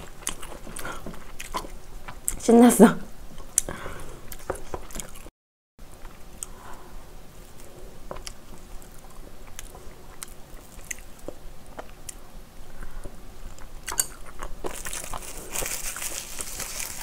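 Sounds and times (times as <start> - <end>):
wet chewing: 3.4 - 5.3, 7.4 - 12.2, 13.5 - 17.0
seaweed sheet crinkling: 14.7 - 17.0.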